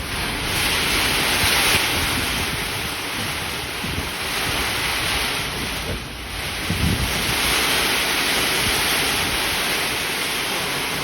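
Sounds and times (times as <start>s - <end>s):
heavy rain falling: 0.0s - 11.0s
wind buffeting microphone: 0.0s - 11.0s.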